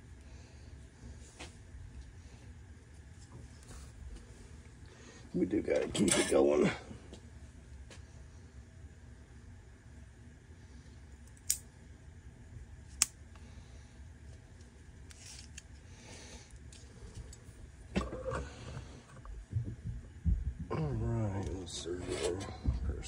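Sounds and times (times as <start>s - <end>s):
low steady hum: 0.0s - 23.0s
tools clattering: 5.8s - 6.5s
sharp clicks of tools: 11.3s - 11.6s, 12.9s - 13.2s.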